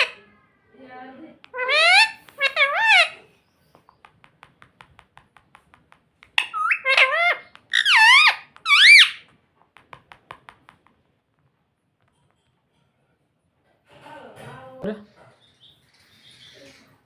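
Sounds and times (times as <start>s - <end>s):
parrot squeaky high calls: 0.0s - 0.2s, 1.5s - 3.3s, 6.4s - 9.3s
parrot clicking: 1.4s - 3.1s, 3.7s - 11.2s.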